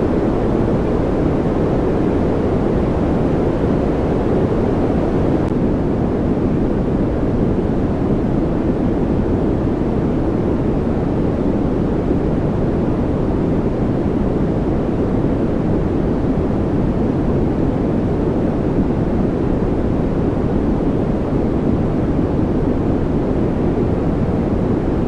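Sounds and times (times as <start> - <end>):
deep white noise rush: 0.0 - 5.5.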